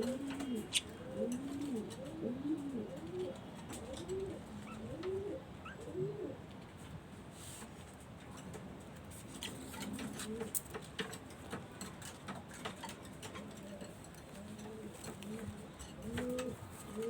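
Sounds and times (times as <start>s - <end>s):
pigeons cooing: 0.0s - 6.4s, 9.5s - 10.6s, 13.2s - 17.0s.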